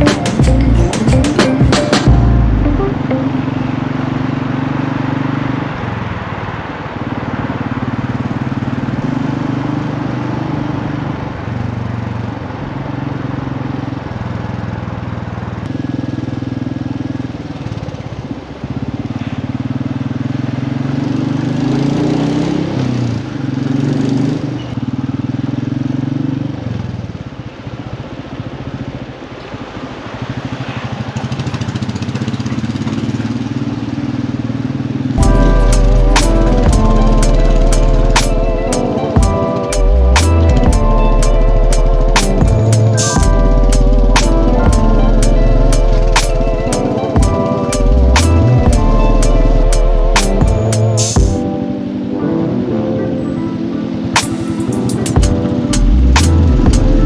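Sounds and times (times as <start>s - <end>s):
wind and road rush: 3.4s - 52.6s
motorcycle engine running: 7.7s - 28.6s, 29.8s - 51.4s.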